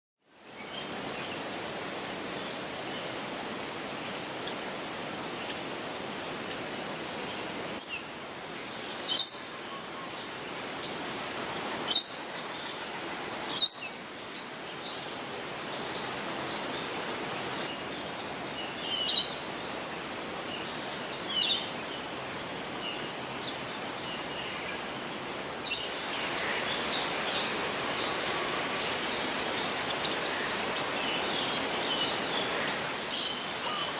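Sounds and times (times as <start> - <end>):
birds chirping: 7.2 - 33.9.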